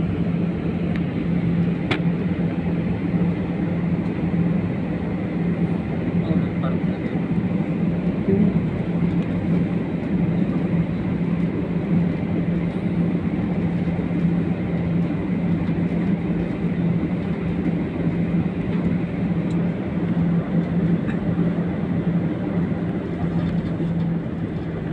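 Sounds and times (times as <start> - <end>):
low engine hum: 0.0 - 24.9.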